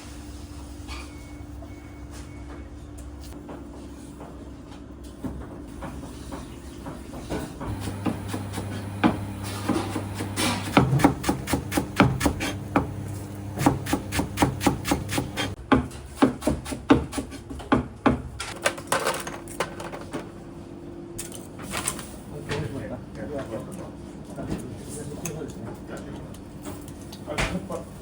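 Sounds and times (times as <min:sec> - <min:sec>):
knife chopping on wooden board: 0:07.7 - 0:18.2.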